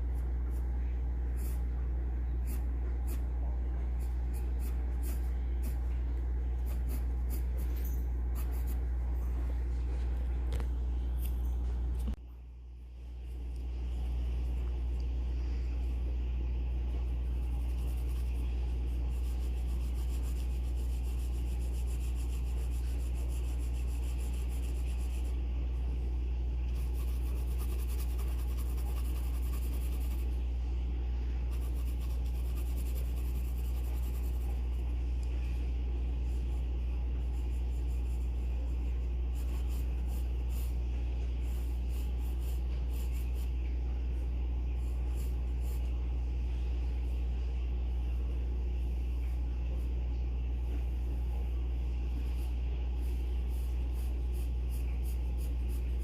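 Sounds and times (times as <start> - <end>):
pencil scratching on paper: 0.0 - 9.0, 16.8 - 25.4, 26.6 - 30.4, 31.4 - 34.9, 36.1 - 43.6, 44.7 - 46.0, 52.2 - 56.0
steady low hum: 0.0 - 56.0.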